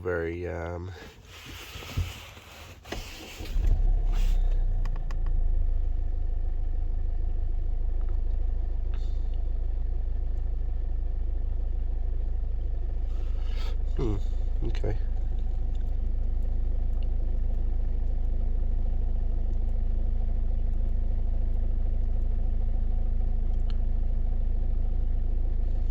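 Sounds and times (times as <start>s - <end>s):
diesel engine starting and idling: 0.0s - 25.9s
clicks: 4.5s - 5.4s.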